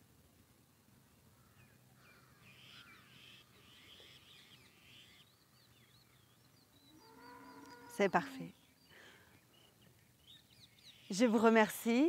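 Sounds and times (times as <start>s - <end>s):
harsh bird calls: 1.4s - 11.6s
thin wavering high chirp: 6.1s - 9.0s.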